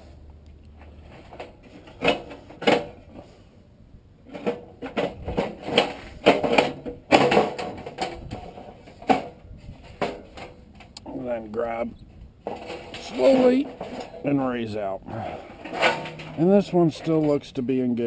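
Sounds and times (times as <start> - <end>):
metal clicks and knocks: 4.3 - 14.4, 15.5 - 17.4.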